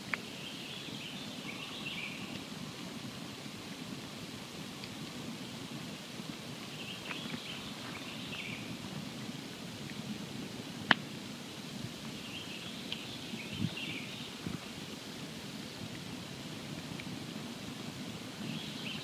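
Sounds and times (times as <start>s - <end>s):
campfire burning and crackling: 0.0s - 19.0s.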